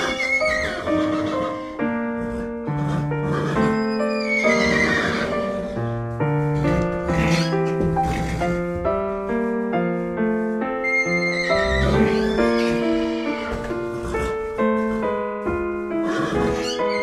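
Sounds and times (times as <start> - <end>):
horse whinnying: 0.0 - 1.7, 2.3 - 5.7, 6.6 - 8.5, 10.8 - 14.4, 16.0 - 17.0
piano music: 0.0 - 17.0.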